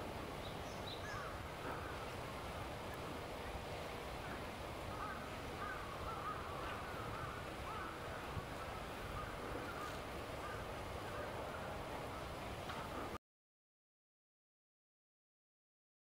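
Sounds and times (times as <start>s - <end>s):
outdoor background noise: 0.0s - 13.2s
bird calling: 0.4s - 2.2s, 4.2s - 13.2s.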